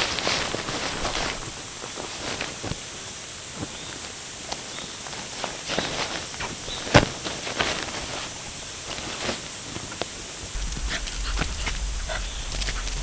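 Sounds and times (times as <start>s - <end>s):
background hiss: 7.4s - 13.0s
footsteps: 10.5s - 13.0s
low rumble: 10.5s - 13.0s.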